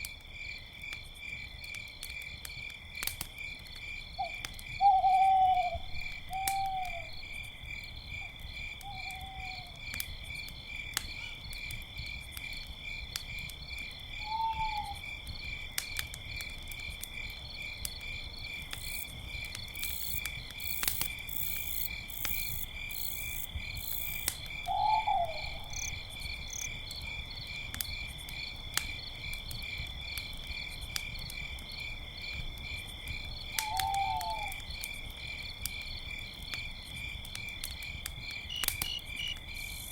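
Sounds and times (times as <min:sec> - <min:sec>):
campfire crackling: 0:00.0 - 0:08.9, 0:09.6 - 0:39.9
crickets chirping: 0:00.2 - 0:39.9
owl hooting: 0:04.2 - 0:07.1, 0:08.8 - 0:09.7, 0:14.3 - 0:15.0, 0:24.7 - 0:26.7, 0:33.6 - 0:34.6.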